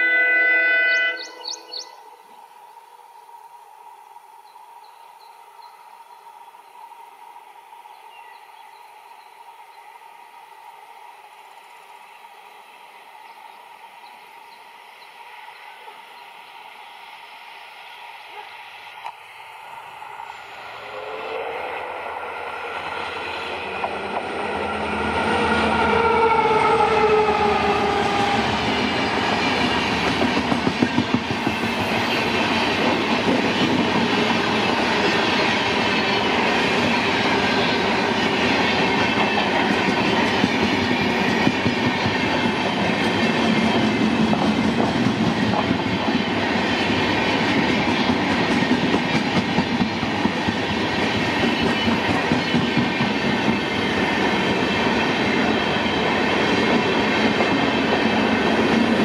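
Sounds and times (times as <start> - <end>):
diesel locomotive passing: 0.0 - 59.0
clickety-clack of train wheels: 23.1 - 25.8, 27.5 - 59.0.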